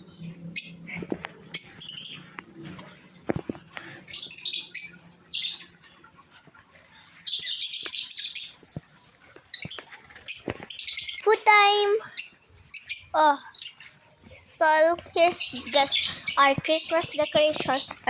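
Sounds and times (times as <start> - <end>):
parrots chirping shrilly: 1.6 - 2.3, 12.1 - 13.8, 15.2 - 18.0.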